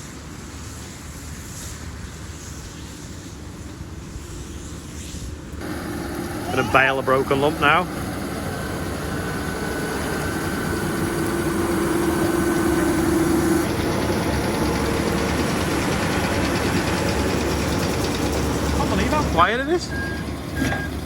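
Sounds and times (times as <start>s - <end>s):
steady whine: 5.6s - 21.0s
tractor and baler running: 5.6s - 21.0s.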